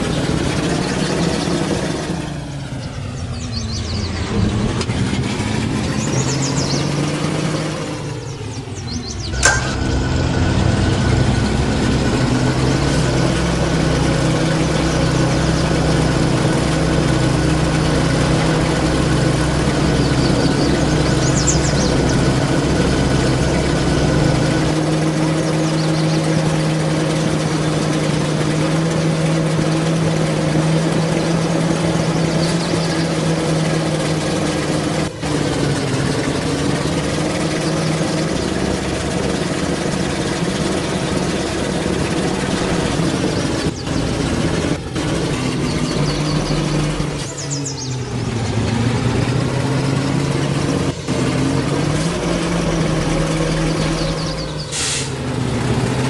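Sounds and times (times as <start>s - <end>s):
truck engine running: 0.0s - 56.0s
deep low rumble: 3.1s - 6.6s, 8.9s - 24.7s.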